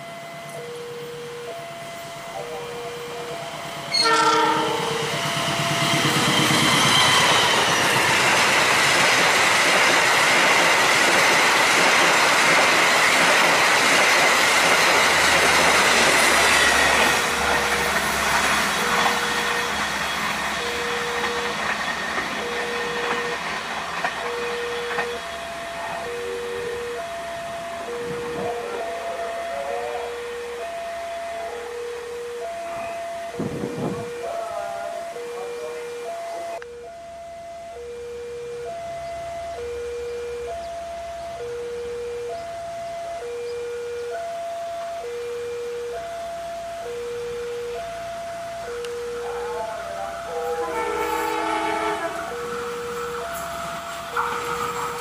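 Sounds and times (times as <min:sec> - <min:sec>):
train passing at high speed: 0:00.0 - 0:38.0, 0:38.6 - 0:55.0
train horn blast: 0:03.9 - 0:06.1, 0:49.2 - 0:53.4, 0:54.1 - 0:55.0.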